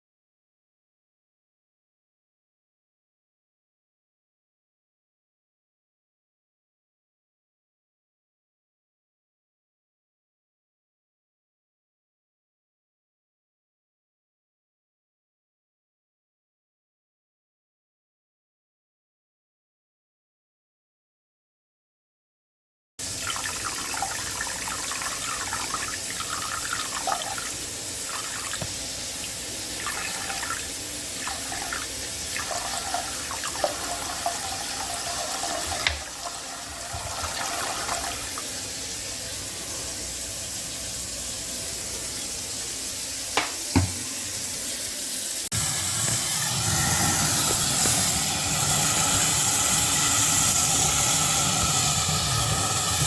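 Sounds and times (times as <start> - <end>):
water splashing into drain pipe: 23.2 - 38.6.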